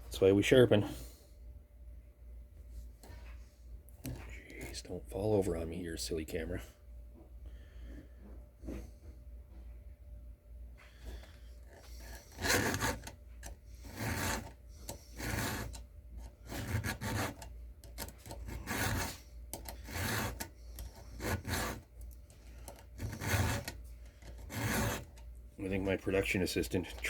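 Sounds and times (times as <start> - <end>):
file rasping on chainsaw chain: 11.8 - 13.2, 13.8 - 15.8, 16.4 - 21.9, 22.6 - 25.2.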